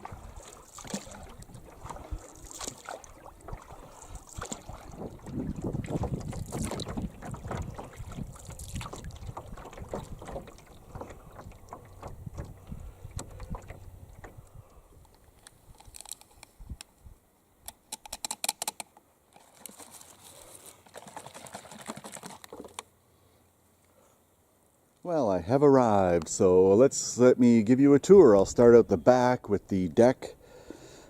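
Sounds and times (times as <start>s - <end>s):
wind noise on microphone: 0.0s - 2.3s, 3.4s - 17.2s
paddle strokes in water: 0.0s - 15.4s, 19.4s - 22.8s
sharp clicking knocks: 9.3s - 14.4s.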